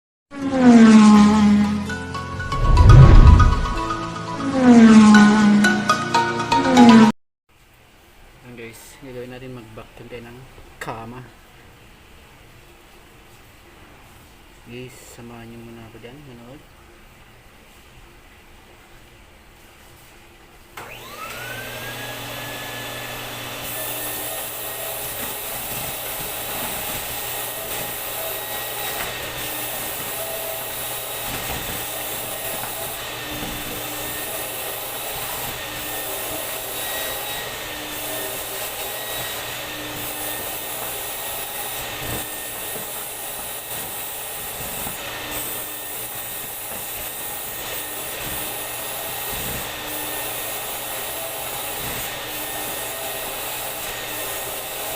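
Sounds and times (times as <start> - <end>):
vacuum cleaner motor whine: 20.8 - 54.9.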